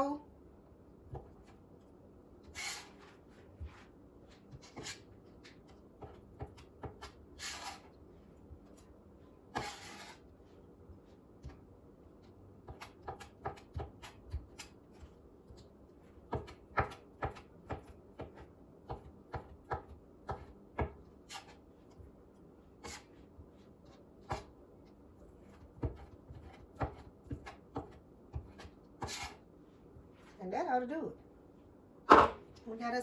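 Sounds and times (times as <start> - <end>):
knife chopping on cutting board: 4.5 - 7.9, 9.5 - 10.2, 12.6 - 15.1, 16.3 - 21.6, 24.2 - 24.5, 25.4 - 29.4, 32.1 - 32.4.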